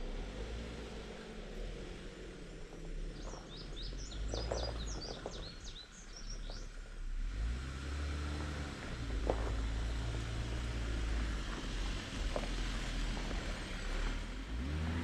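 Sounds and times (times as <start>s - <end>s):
vehicle engine running: 0.0s - 15.0s
songbird chirping: 1.4s - 6.9s.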